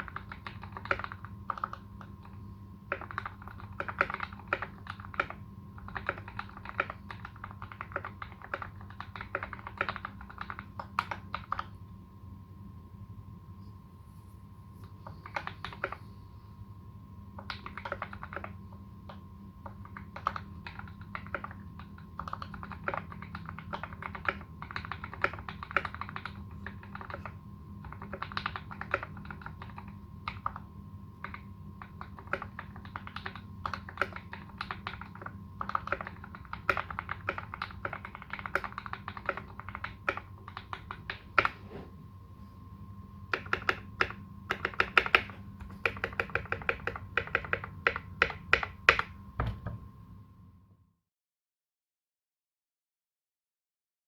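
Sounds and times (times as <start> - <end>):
mechanical keyboard typing: 0.0 - 11.7, 15.0 - 16.0, 17.4 - 41.6, 43.3 - 49.6.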